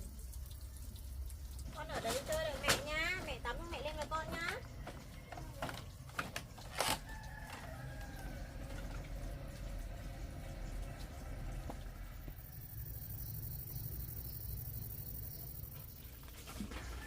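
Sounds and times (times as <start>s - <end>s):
rooster crowing: 6.7s - 9.5s.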